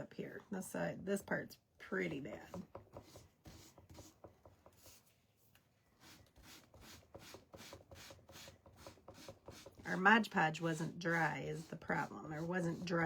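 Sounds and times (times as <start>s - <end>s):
sandpaper rubbing on wood: 10.7s - 13.0s.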